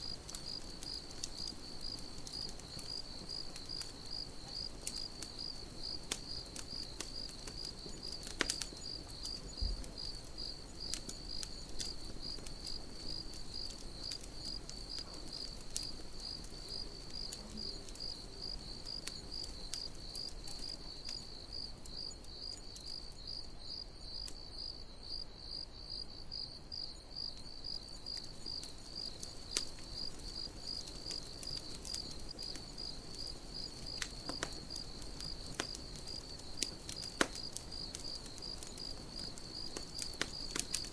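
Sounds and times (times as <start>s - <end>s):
campfire crackling: 0.0s - 40.9s
crickets chirping: 0.0s - 40.9s.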